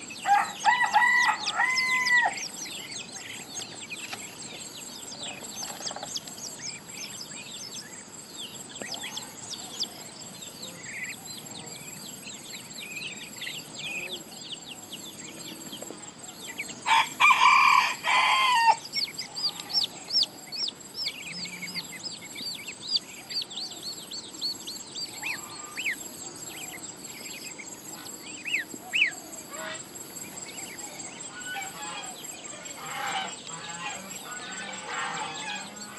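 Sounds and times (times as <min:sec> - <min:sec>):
small birds chirping: 0:00.0 - 0:35.9
rooster crowing: 0:00.2 - 0:02.5, 0:16.8 - 0:19.9.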